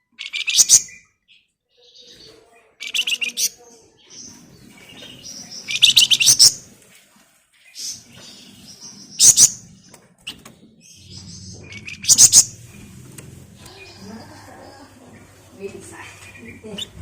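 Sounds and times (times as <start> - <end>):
songbird trilling: 5.1 - 6.6, 10.8 - 12.9.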